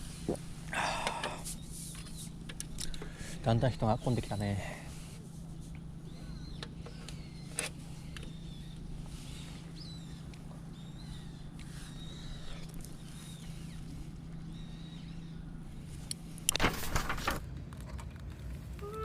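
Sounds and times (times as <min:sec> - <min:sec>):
rustling near microphone: 0:15.8 - 0:18.9.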